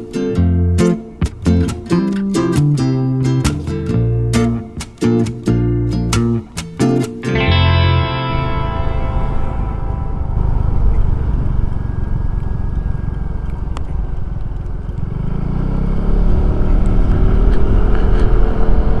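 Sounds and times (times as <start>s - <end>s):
scooter engine accelerating: 7.5s - 19.0s
wind rumble: 7.5s - 19.0s.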